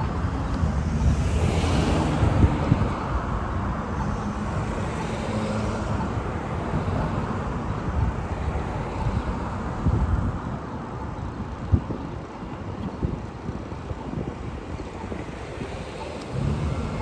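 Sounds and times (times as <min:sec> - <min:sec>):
vehicle passing by: 0:16.0 - 0:17.0.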